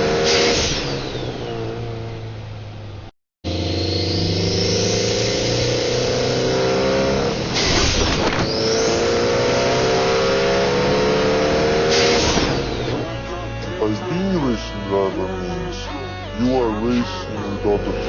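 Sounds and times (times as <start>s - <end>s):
car engine revving through gears: 0.0s - 14.4s.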